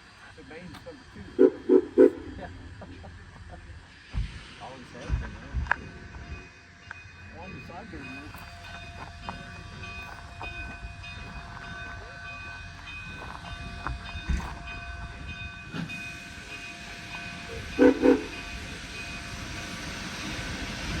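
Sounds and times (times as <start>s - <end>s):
steam locomotive hum: 0.0s - 21.0s
locomotive whistle blasts: 17.8s - 18.4s.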